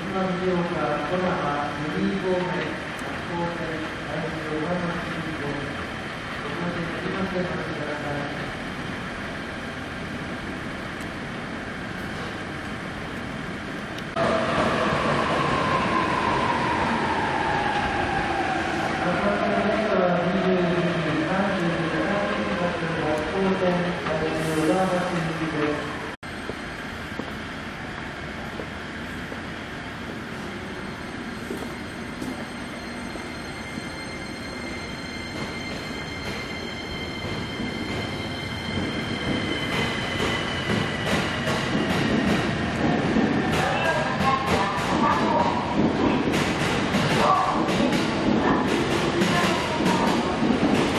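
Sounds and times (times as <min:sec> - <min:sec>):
rumbling hiss of train: 0:00.0 - 0:21.0, 0:23.9 - 0:30.8
train wheels rumbling on track: 0:23.9 - 0:50.9.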